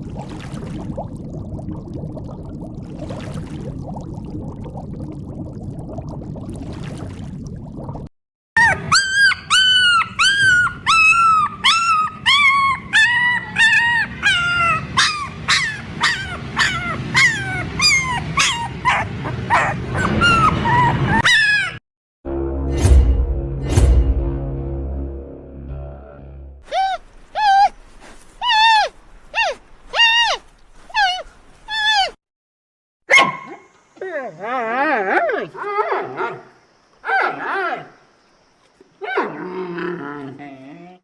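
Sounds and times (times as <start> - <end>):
animal yelping: 8.6 - 21.8, 26.7 - 27.8, 28.4 - 30.4.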